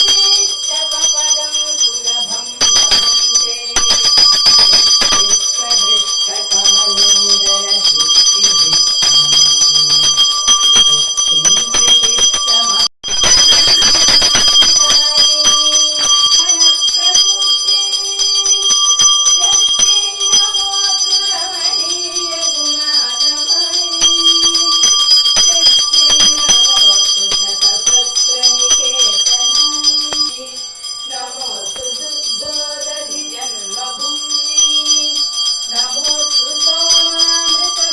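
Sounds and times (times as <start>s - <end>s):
hand bell ringing: 0.0s - 37.9s
devotional song singing: 19.9s - 37.9s.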